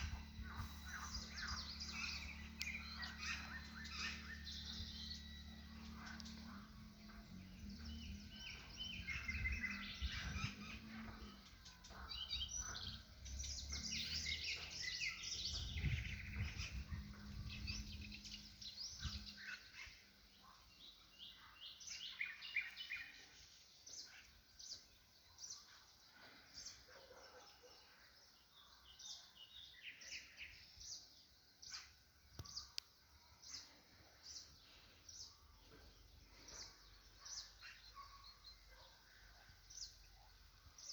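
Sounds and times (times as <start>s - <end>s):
songbirds chirping and singing: 0.0s - 40.9s.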